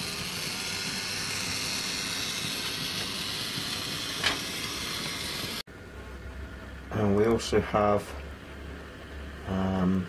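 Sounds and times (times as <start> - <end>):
model train motor whirring: 0.0 - 5.6.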